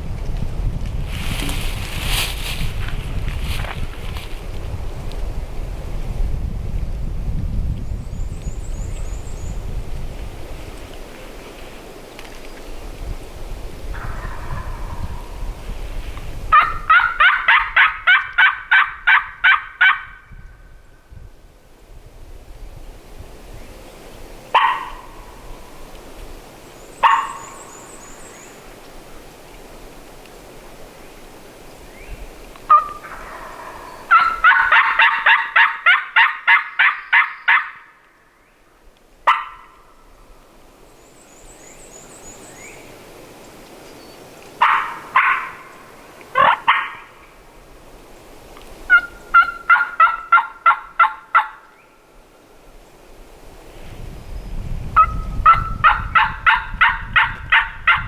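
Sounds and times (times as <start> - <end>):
turkey yelping: 16.6 - 20.1, 27.0 - 27.5, 32.7 - 37.9, 44.6 - 45.8, 46.4 - 47.2, 48.9 - 51.6
turkey sharp calls: 27.0 - 27.7, 32.7 - 37.9, 44.6 - 47.2, 48.9 - 51.7.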